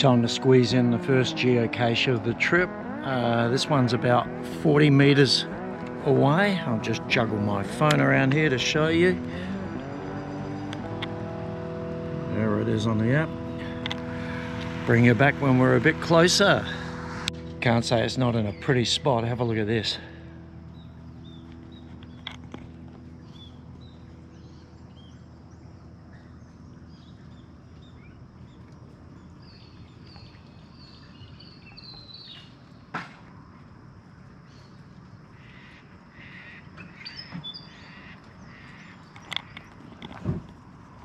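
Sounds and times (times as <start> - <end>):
birds chirping: 0.0 - 33.0, 34.2 - 41.0
outdoor ambience: 0.0 - 41.0
birds cawing: 35.3 - 39.8.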